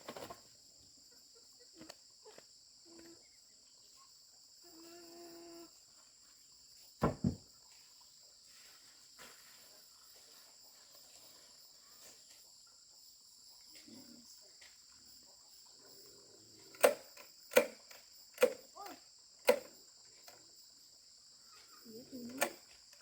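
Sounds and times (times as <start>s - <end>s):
insects chirring: 0.0s - 23.0s
sharp knocks: 7.0s - 7.4s.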